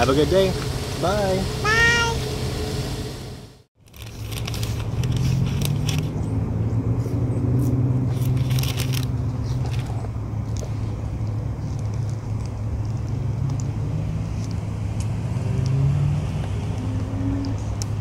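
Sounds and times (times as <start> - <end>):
car engine running: 0.0 - 3.6.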